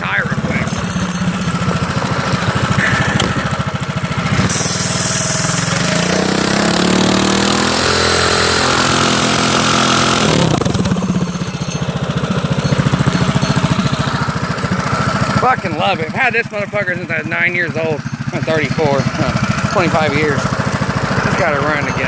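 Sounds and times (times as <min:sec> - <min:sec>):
minibike engine revving: 0:00.0 - 0:22.0
tire spinning hiss: 0:04.2 - 0:06.8.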